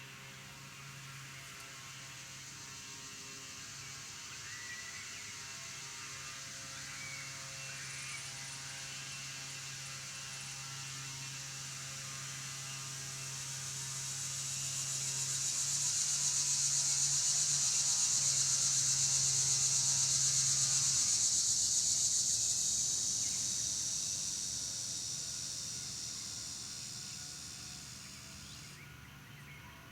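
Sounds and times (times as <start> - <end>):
insect buzzing: 6.0 - 28.8.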